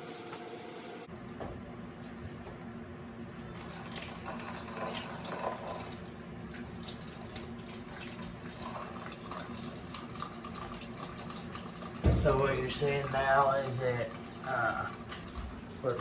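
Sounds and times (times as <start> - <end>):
water trickling and dripping: 3.6 - 16.0.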